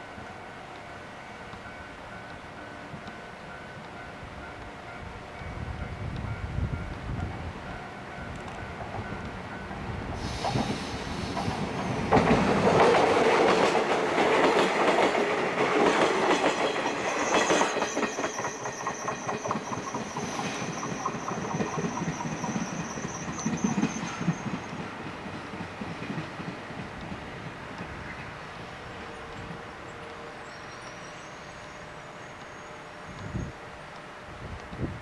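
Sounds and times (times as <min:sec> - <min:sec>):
electric train passing: 0:00.0 - 0:35.0
wheels clicking over rail joints: 0:08.2 - 0:28.3.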